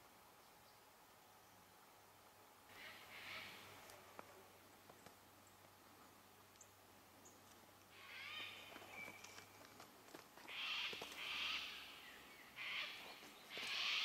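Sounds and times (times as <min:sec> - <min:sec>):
harsh raspy bird calls: 0:02.7 - 0:03.8, 0:07.9 - 0:08.7, 0:10.5 - 0:12.0, 0:12.6 - 0:14.0.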